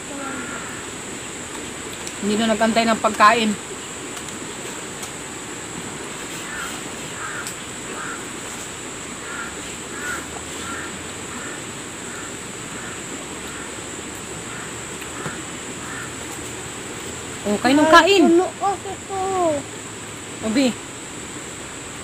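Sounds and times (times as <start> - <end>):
high-pitched insect drone: 0.0 - 1.4, 6.2 - 20.8.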